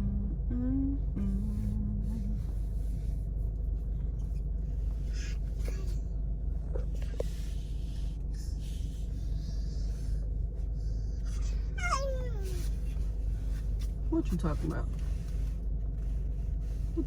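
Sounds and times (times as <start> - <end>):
car idling: 0.0 - 17.0.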